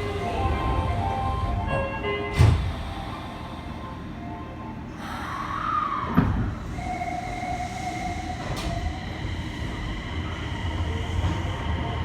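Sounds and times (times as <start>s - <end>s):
wheels rumbling on rail: 8.1s - 12.0s.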